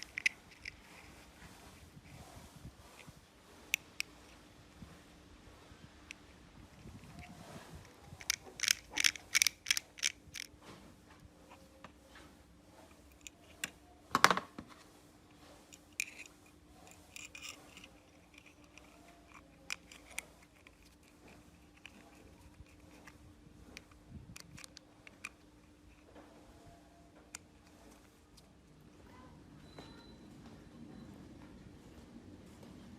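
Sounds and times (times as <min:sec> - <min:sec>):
metal parts clicking: 0:00.0 - 0:01.1, 0:08.2 - 0:10.5, 0:15.9 - 0:23.2.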